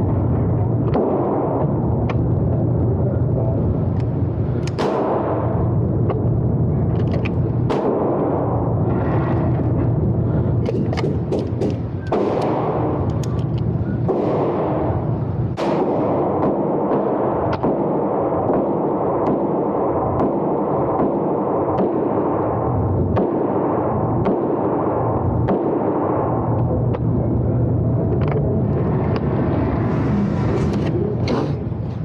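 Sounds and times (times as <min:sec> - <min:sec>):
gunshots cracking: 0:04.7 - 0:05.5, 0:10.6 - 0:13.0, 0:14.0 - 0:15.0, 0:15.6 - 0:22.4
loud rushing noise: 0:27.1 - 0:32.0.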